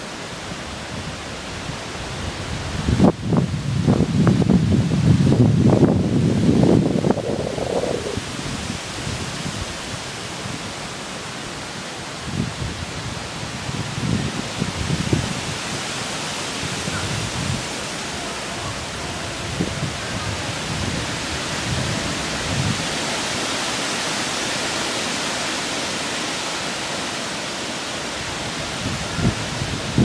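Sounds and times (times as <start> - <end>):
storm wind through trees: 0.0 - 30.0
wind buffeting microphone: 0.9 - 10.8, 12.2 - 23.4, 28.1 - 30.0.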